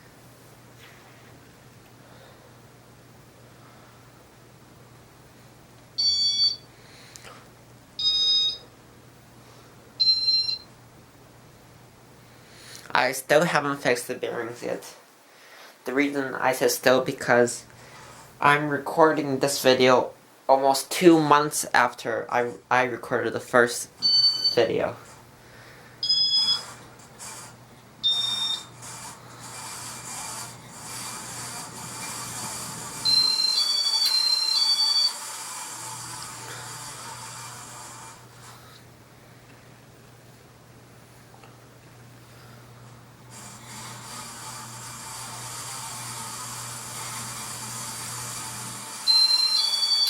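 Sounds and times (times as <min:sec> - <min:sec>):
ceiling fan with rasping bearings: 0:00.0 - 0:11.0, 0:20.5 - 0:50.0
two-tone electronic beep: 0:06.0 - 0:06.6, 0:08.0 - 0:08.6, 0:24.0 - 0:24.7, 0:26.0 - 0:26.7, 0:28.0 - 0:28.7, 0:33.1 - 0:35.2, 0:49.1 - 0:50.0
ceiling fan bearings squealing: 0:28.0 - 0:38.0, 0:48.9 - 0:50.0.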